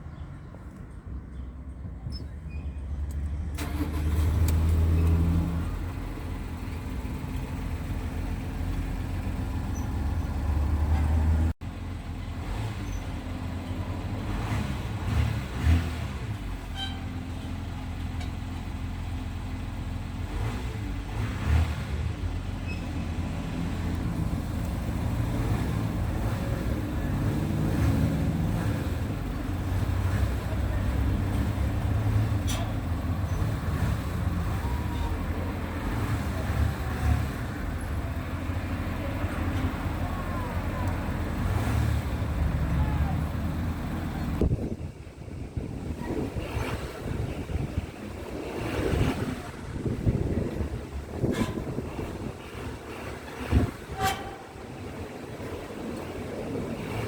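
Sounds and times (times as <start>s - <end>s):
diesel engine idling: 3.0s - 14.2s, 21.9s - 57.0s.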